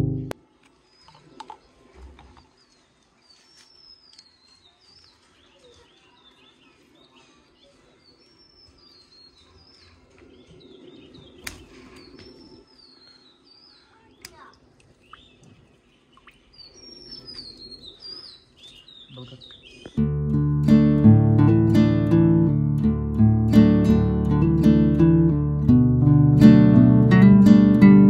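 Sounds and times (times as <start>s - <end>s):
small birds chirping: 0.7s - 21.1s
outdoor background hiss: 7.8s - 28.0s.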